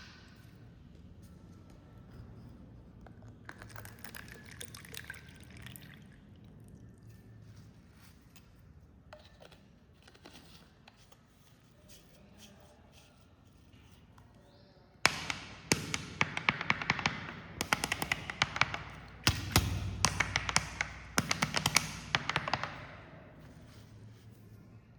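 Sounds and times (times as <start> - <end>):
cola fizzing and crackling: 3.4 - 7.4.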